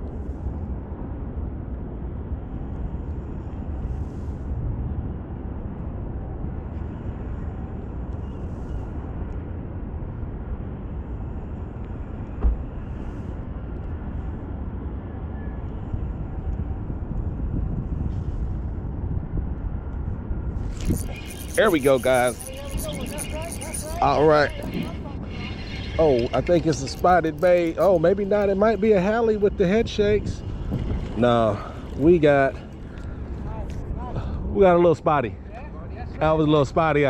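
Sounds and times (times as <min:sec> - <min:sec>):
low outdoor rumble: 0:08.9 - 0:37.0.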